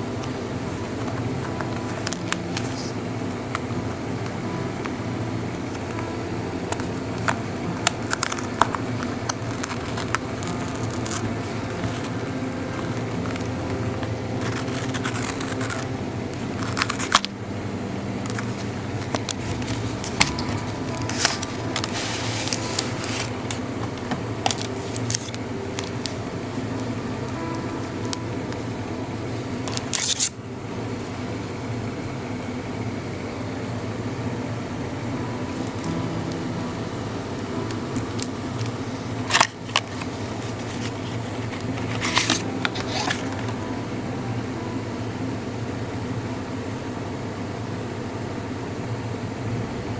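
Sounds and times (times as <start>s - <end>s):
steady low hum: 0.0s - 49.9s
packaging being opened by hand: 6.7s - 15.9s, 16.5s - 17.3s, 18.2s - 28.2s, 29.6s - 30.3s, 37.5s - 43.6s.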